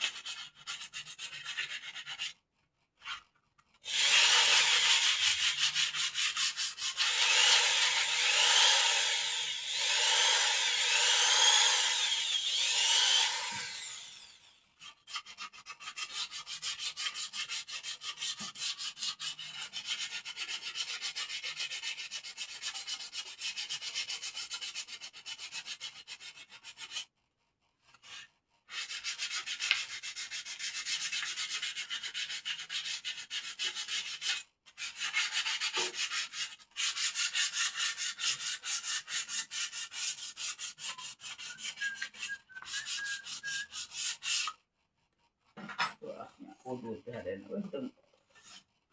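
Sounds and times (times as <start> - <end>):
sandpaper rubbing on wood: 0.0 - 2.4, 3.9 - 9.1, 15.1 - 27.0, 28.1 - 44.5.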